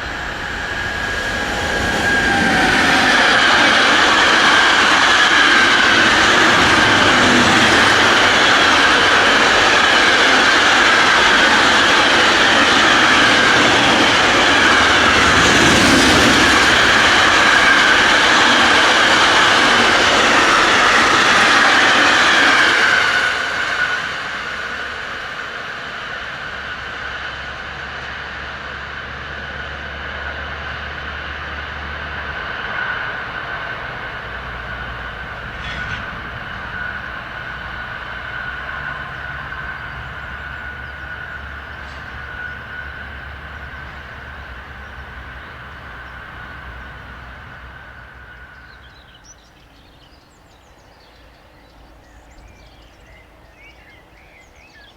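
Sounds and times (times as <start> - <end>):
high-pitched whine: 0.0 - 22.1
train passing: 0.0 - 54.9.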